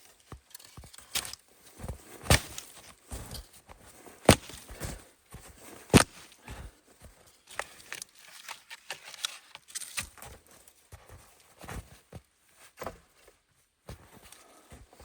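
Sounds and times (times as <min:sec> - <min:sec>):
crunching steps in snow: 0:01.5 - 0:07.2.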